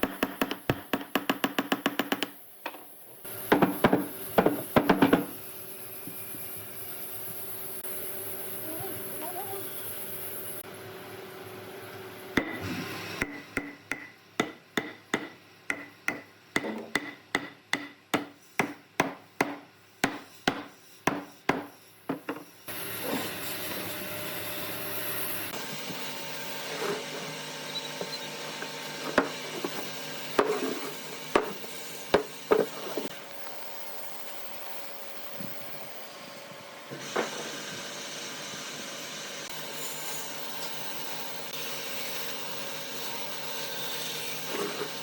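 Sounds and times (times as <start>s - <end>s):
hammer striking wood: 0.0s - 2.4s, 3.5s - 5.3s, 13.2s - 22.4s, 31.3s - 32.7s.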